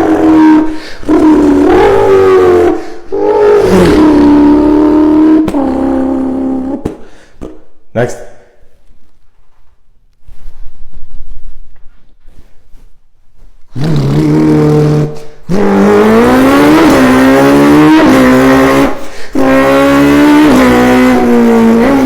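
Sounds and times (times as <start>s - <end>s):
person imitating car engine: 0.0s - 7.1s, 13.7s - 22.0s.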